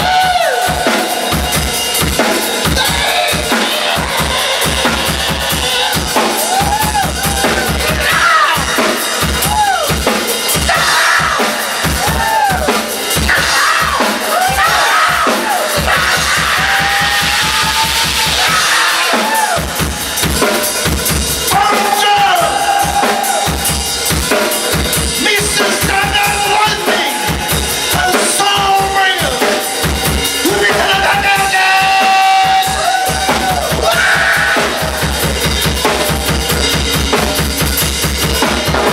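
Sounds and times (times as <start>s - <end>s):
bass guitar: 0.0s - 38.9s
drum kit: 0.0s - 38.9s.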